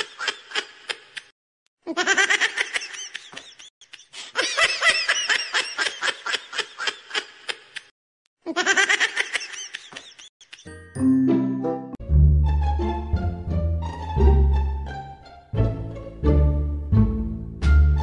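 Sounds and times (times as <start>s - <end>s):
high-pitched giggling: 0.0s - 10.9s.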